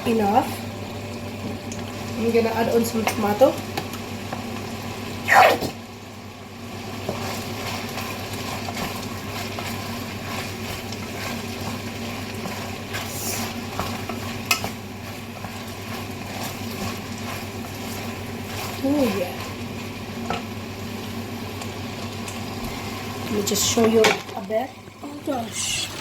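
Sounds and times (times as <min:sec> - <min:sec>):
low hum: 0:00.0 - 0:05.2
food sizzling in a pan: 0:00.0 - 0:26.0.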